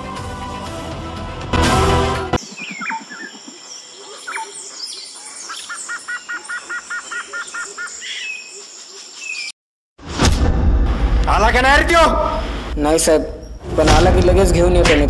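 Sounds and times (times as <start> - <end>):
birds chirping: 2.4 - 9.6.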